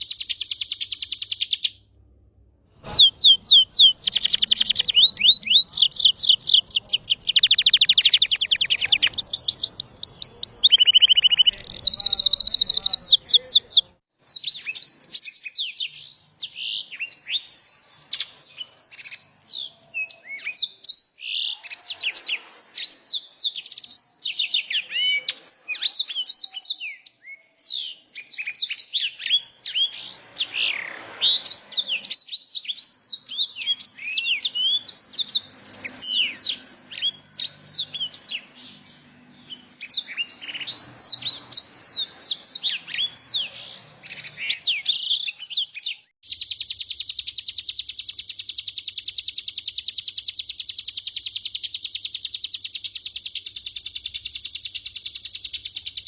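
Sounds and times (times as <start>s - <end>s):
songbird singing trills: 0.0s - 56.0s.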